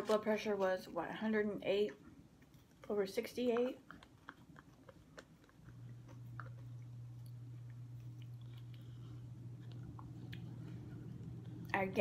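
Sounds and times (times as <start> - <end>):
steady low hum: 0.0 - 12.0
person chewing food: 2.2 - 11.8.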